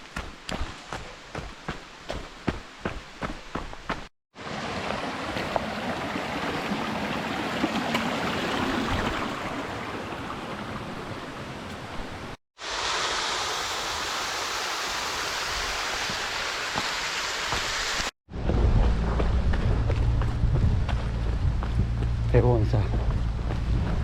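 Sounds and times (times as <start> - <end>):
stream water running over rocks: 0.0 - 18.1.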